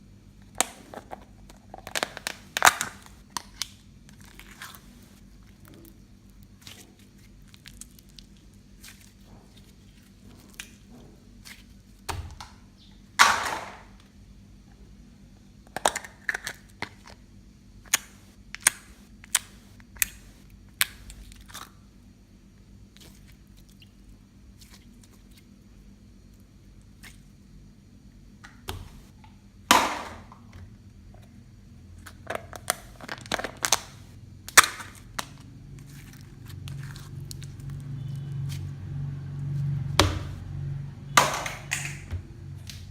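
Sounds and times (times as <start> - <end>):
slime squelches: 1.7 - 12.1, 22.9 - 25.7, 32.1 - 40.5
slime popping and crackling: 32.4 - 37.8.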